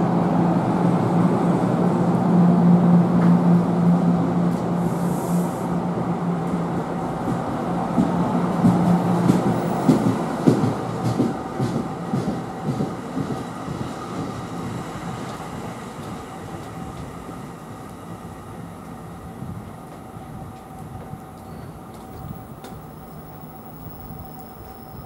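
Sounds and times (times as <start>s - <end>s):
train rumble: 0.0s - 25.0s
train wheels clacking over joints: 7.3s - 14.5s.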